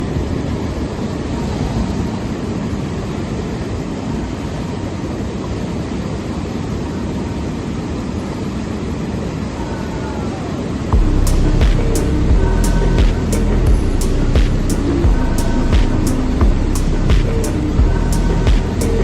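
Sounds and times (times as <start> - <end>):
wind: 0.0 - 19.0
boat motor rumble: 10.9 - 19.0.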